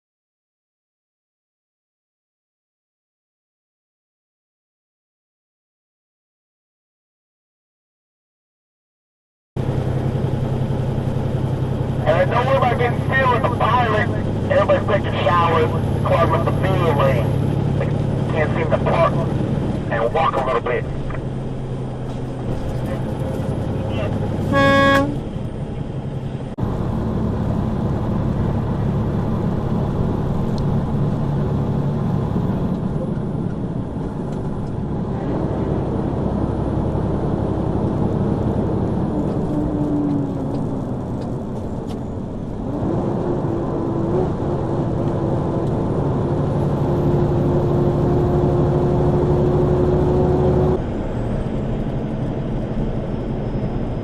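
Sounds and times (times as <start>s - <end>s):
truck engine running: 9.6s - 42.7s
high whine: 9.9s - 25.6s
truck horn blast: 24.4s - 25.3s.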